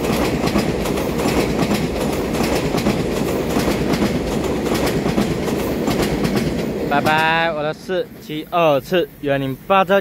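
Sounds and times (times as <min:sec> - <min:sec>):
wheels clicking over rail joints: 0:00.0 - 0:07.5
train wheels rumbling on rail: 0:00.0 - 0:10.0.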